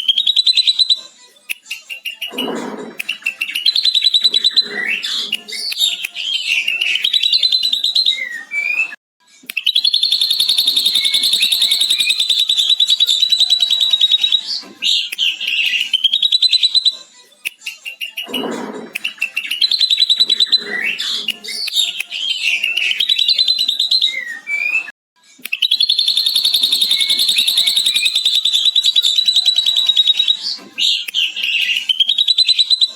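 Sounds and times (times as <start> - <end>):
bird trilling chatter: 9.8 - 14.4, 25.7 - 32.9.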